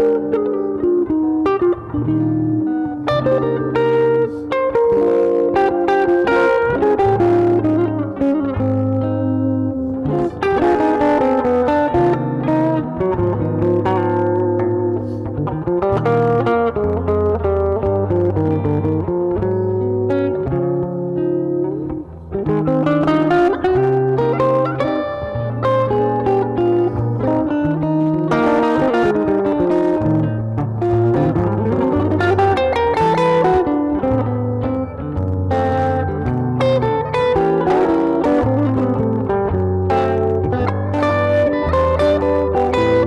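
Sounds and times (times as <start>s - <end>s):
electric guitar playing chords: 0.0s - 43.0s.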